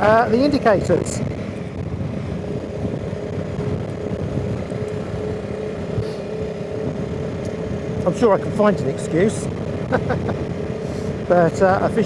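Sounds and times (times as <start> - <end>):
wind on microphone: 0.0 - 8.5
motorcycle engine running: 0.0 - 12.0.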